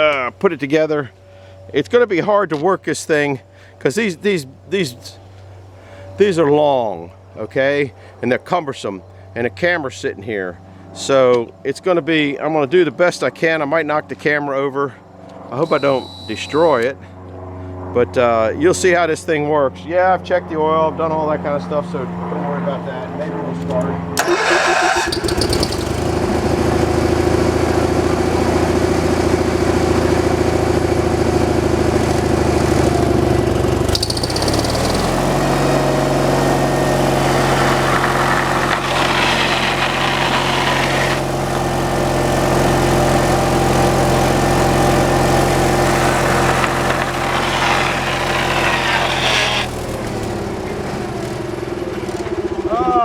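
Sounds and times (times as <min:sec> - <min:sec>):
small gasoline engine running: 0:24.2 - 0:53.0.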